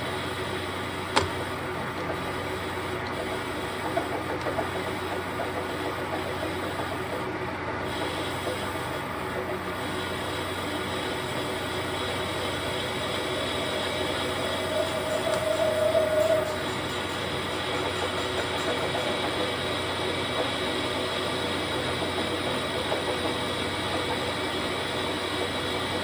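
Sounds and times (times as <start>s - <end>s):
machinery humming: 0.0s - 26.0s
sharp click: 1.1s - 1.4s.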